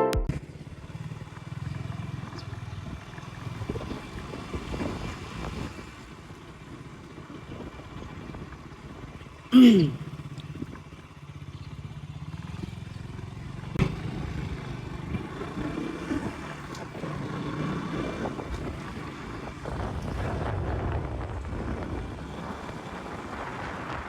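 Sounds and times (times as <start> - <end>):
motorcycle engine running: 0.3 - 5.4, 10.0 - 19.7
wind buffeting microphone: 18.0 - 24.0.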